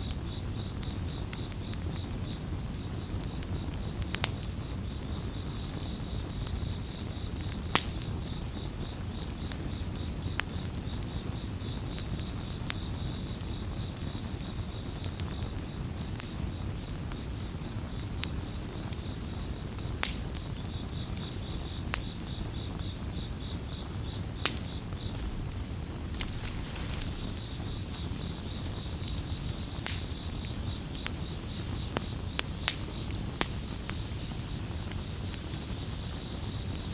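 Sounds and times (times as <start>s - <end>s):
campfire crackling: 0.0s - 36.9s
cricket chirping: 0.0s - 36.9s.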